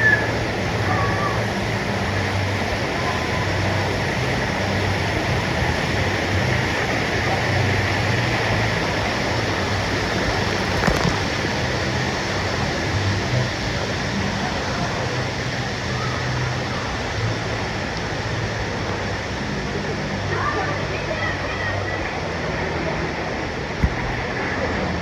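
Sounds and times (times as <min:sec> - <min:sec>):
churning river water: 0:00.0 - 0:25.0.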